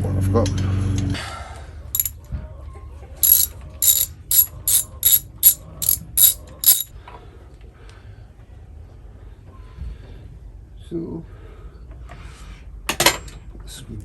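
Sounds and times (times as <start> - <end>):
ratchet wrench clicking: 3.2 - 6.9.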